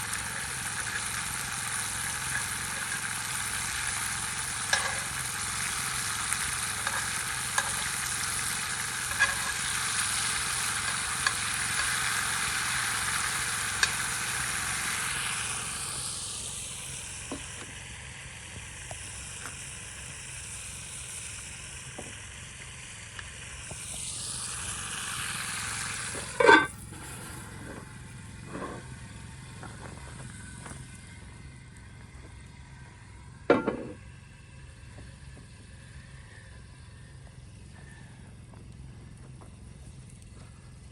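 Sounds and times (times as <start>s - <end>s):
food sizzling in a pan: 0.0s - 30.8s.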